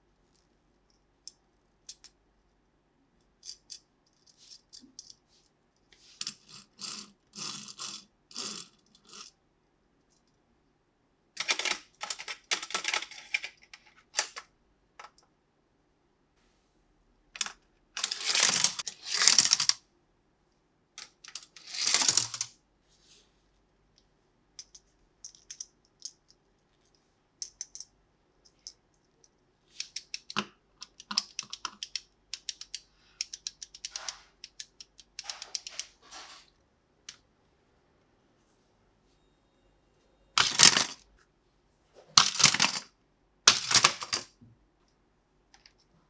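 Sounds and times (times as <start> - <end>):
plastic toy parts clicking: 11.4 - 14.4, 17.4 - 19.8, 21.0 - 22.5, 24.6 - 26.4, 27.4 - 28.8, 29.8 - 35.9, 40.4 - 41.0, 42.2 - 42.9, 43.5 - 44.3
toy packaging rustling: 18.0 - 19.6, 40.4 - 41.0, 42.2 - 42.8.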